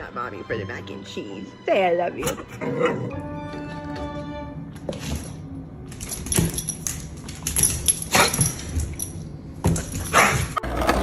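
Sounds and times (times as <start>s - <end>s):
clicking and jingling: 5.0s - 9.3s.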